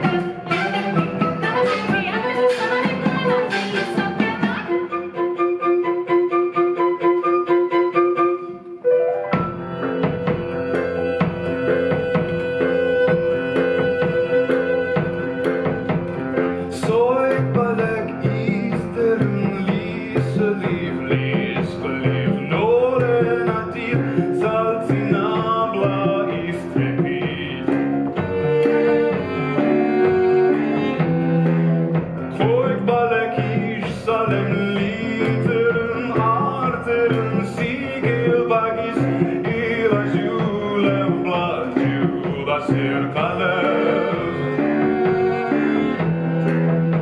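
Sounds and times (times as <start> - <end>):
bowed strings: 25.0 - 38.6, 39.2 - 47.0.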